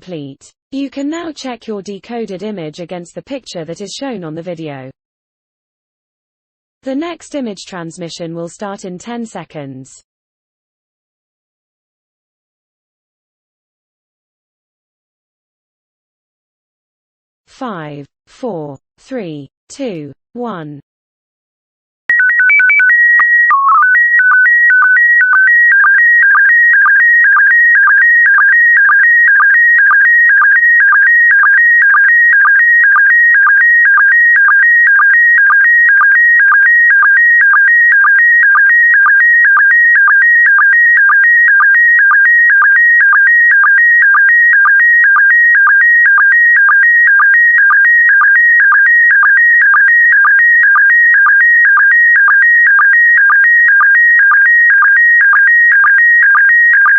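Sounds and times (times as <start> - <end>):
stepped beeps: 22.1 - 56.9.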